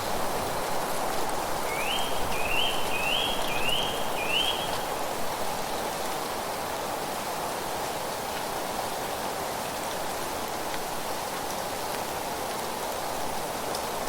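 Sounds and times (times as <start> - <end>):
wind through leaves: 0.0 - 14.0
bird whistling rising notes: 1.7 - 4.8.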